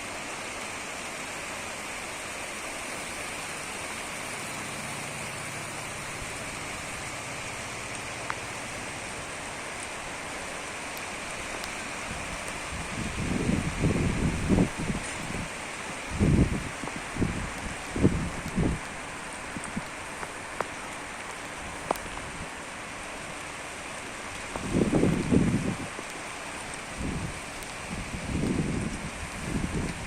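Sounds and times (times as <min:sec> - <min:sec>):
steady rain: 0:00.0 - 0:30.0
wind buffeting microphone: 0:12.0 - 0:20.4, 0:24.4 - 0:26.1, 0:26.8 - 0:30.0.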